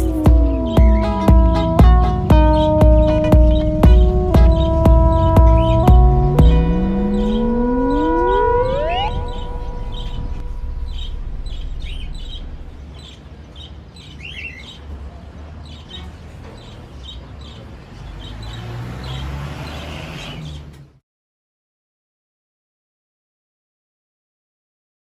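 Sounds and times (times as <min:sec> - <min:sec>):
steady low rumble: 0:00.0 - 0:13.7
birds chirping: 0:00.0 - 0:21.0.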